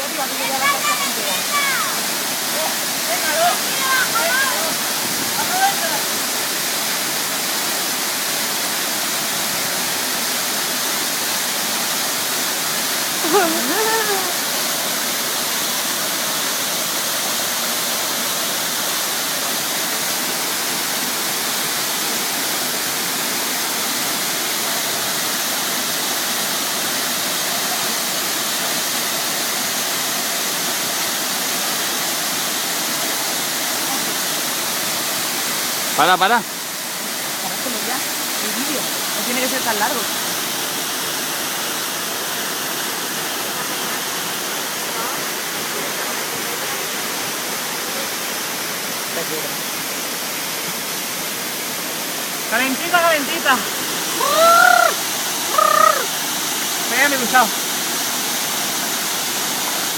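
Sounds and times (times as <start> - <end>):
waterfall pouring: 0.0 - 59.9
person's voice: 13.2 - 14.4, 52.5 - 56.1.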